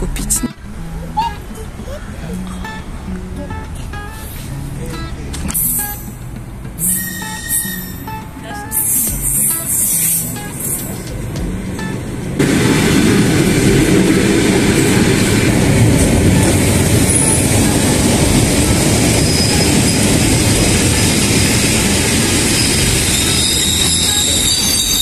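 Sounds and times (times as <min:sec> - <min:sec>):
train rolling rumble: 0:00.0 - 0:25.0
faint wheel squeals: 0:00.8 - 0:11.2, 0:19.1 - 0:25.0.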